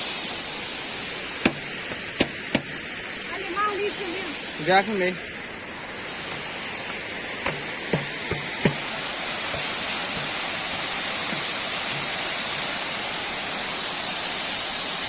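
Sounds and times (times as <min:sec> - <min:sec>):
waterfall rushing: 0:00.0 - 0:15.0
light knocks: 0:07.4 - 0:10.6.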